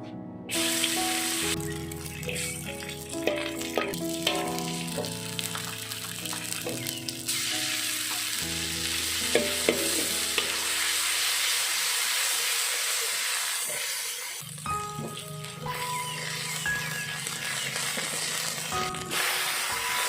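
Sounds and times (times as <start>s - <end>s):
background music with plucked notes: 0.0s - 11.3s, 14.5s - 17.4s, 18.6s - 20.0s
food sizzling in hot oil: 0.5s - 20.0s.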